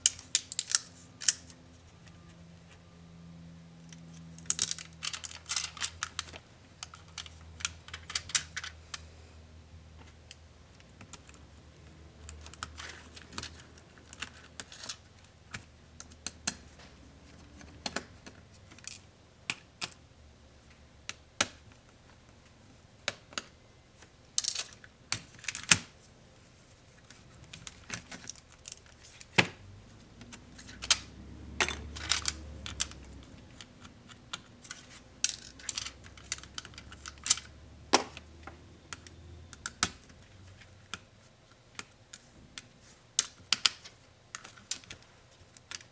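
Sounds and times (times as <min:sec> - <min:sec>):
plastic parts clicking and tapping: 0:00.0 - 0:02.2, 0:03.9 - 0:09.0, 0:10.0 - 0:20.0, 0:23.0 - 0:26.0, 0:27.0 - 0:45.9.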